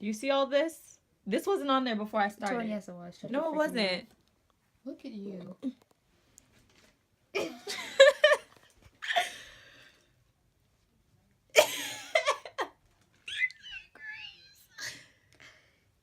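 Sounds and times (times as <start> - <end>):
person laughing: 13.3 - 14.0.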